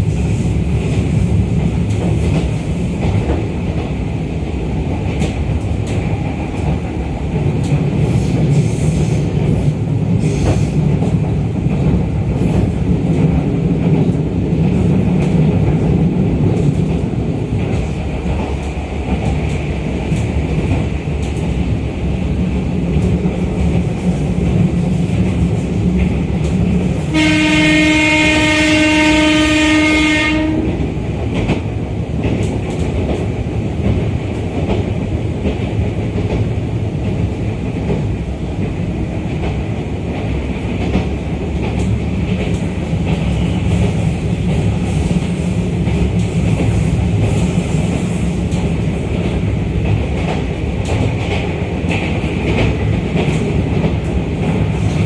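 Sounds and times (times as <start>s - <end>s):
train wheels on rails: 0.0s - 55.0s
train horn: 27.1s - 30.8s.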